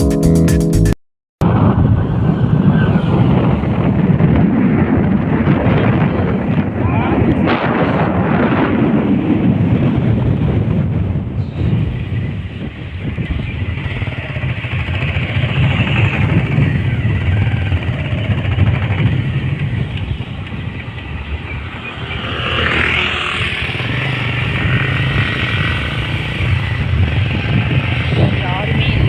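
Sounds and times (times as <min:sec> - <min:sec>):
road and wind noise: 0:01.4 - 0:29.0.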